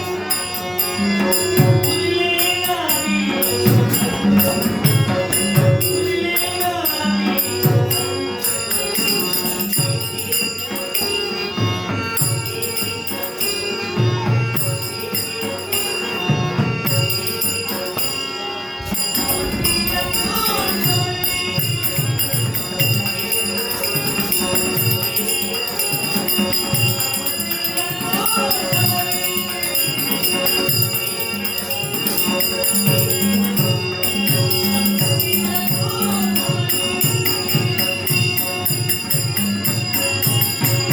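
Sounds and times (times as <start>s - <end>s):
jingling metal percussion: 0.0s - 40.9s
sustained high tones: 0.0s - 40.9s
hand drum beat: 18.8s - 25.2s
person singing: 19.3s - 22.0s.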